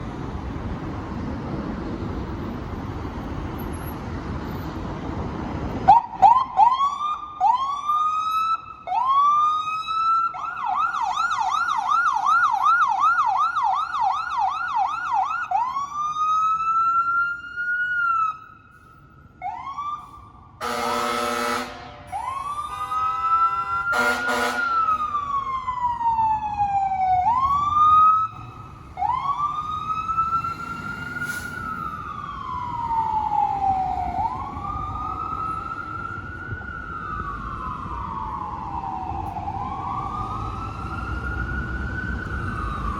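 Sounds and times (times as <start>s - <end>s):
traffic rumble: 0.0s - 42.9s
fire engine siren: 5.7s - 42.9s
horn blasts: 20.6s - 25.0s.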